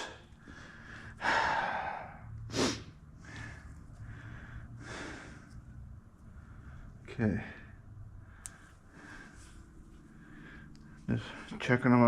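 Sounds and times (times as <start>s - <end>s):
man breathing: 0.0s - 11.5s
low steady hum: 0.0s - 12.0s.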